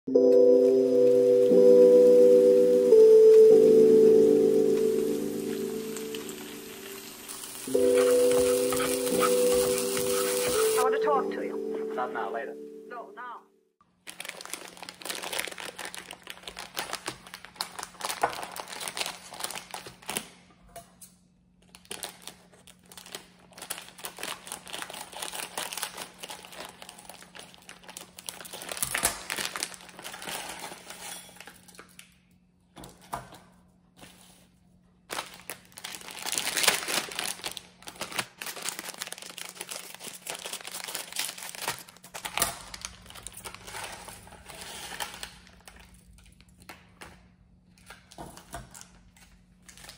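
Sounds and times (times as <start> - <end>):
dry noodles crushed: 13.9 - 20.4, 21.6 - 32.1, 35.0 - 47.0
plastic packets crinkling: 13.9 - 20.4, 21.6 - 32.0, 35.0 - 46.9, 47.7 - 49.9.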